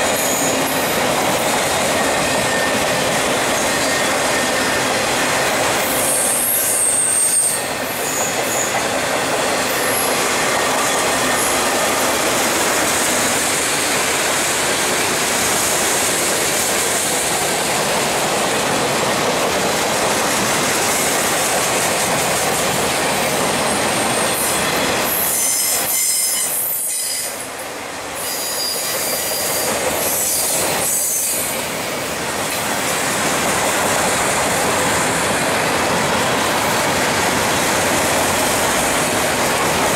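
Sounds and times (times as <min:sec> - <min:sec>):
train wheel noise: 0:00.0 - 0:39.9
high-pitched wheel squeal: 0:02.0 - 0:04.9, 0:05.8 - 0:08.8, 0:24.1 - 0:27.4
clickety-clack over rail joints: 0:07.4 - 0:27.4, 0:28.2 - 0:39.9.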